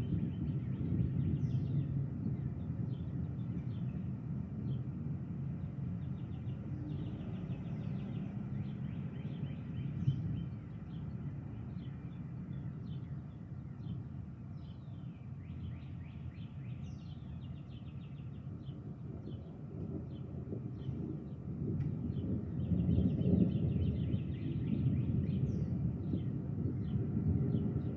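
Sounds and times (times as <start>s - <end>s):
steady low rumble: 0.0s - 4.8s
small birds chirping and trilling: 5.7s - 21.4s.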